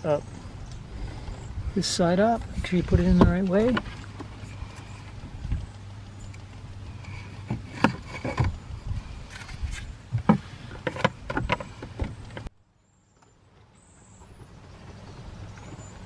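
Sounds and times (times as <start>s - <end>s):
steady low hum: 0.0s - 16.0s
hard plastic clicks and knocks: 10.1s - 12.5s.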